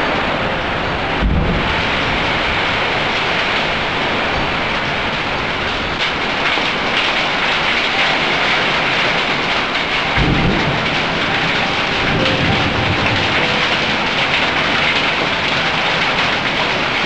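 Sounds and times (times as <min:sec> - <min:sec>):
heavy rain pouring: 0:00.0 - 0:17.0
low rumble of thunder: 0:01.1 - 0:03.2, 0:10.1 - 0:16.8.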